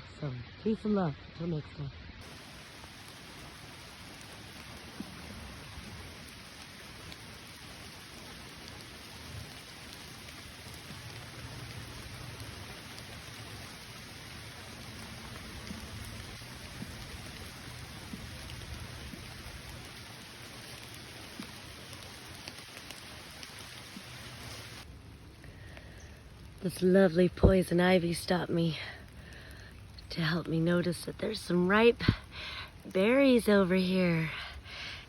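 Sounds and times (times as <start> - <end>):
steady rain hiss: 0.0 - 35.0
raindrop ticks: 2.2 - 35.0.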